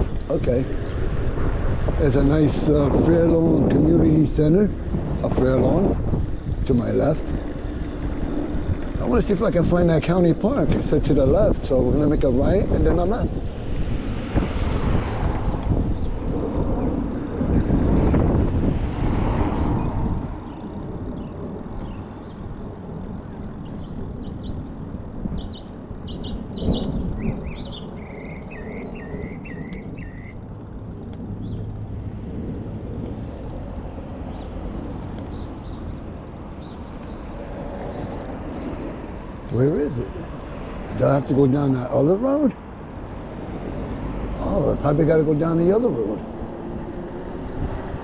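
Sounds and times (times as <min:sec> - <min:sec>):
street and traffic noise: 0:00.0 - 0:48.0
wind rushing over microphone: 0:00.0 - 0:48.0
faint bird chirps: 0:25.4 - 0:30.4.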